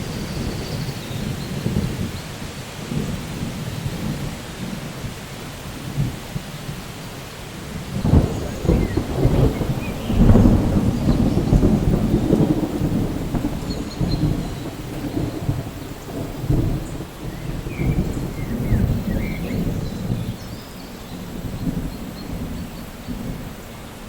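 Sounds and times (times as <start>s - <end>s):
steady rain: 0.0s - 24.0s
rolling thunder: 7.6s - 24.0s.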